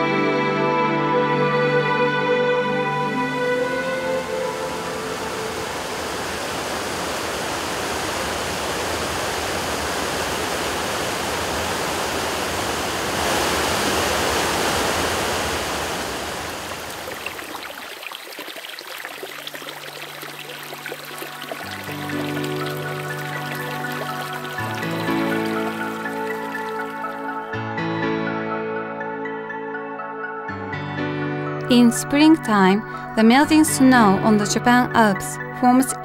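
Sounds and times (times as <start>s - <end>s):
soft music: 0.0s - 6.7s, 19.2s - 36.0s
rushing water: 3.0s - 27.5s.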